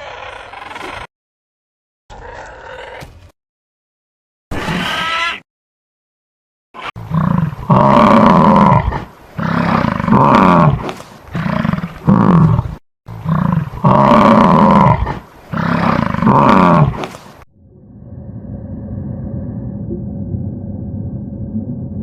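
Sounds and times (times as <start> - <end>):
animal long rising and falling cries: 17.7 - 22.0.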